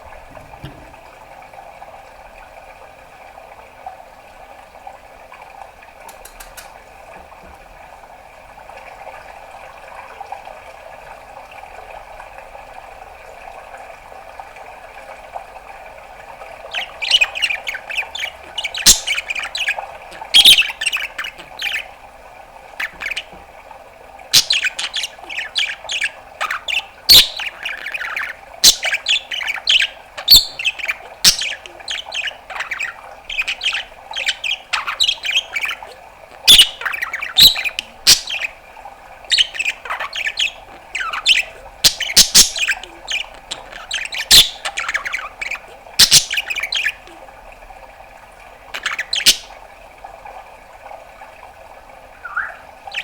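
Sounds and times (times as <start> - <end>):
steady background hum: 0.0 - 53.0
budgerigar chattering: 16.7 - 21.9, 24.4 - 38.6, 39.3 - 47.2, 48.8 - 49.5, 52.2 - 53.0.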